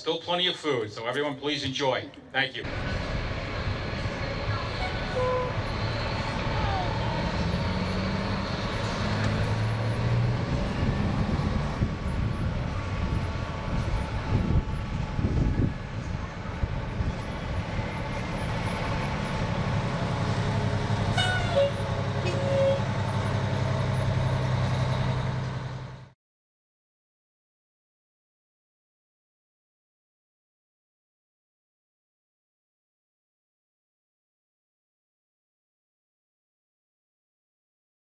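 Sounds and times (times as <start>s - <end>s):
fire truck diesel engine running: 1.0s - 26.2s.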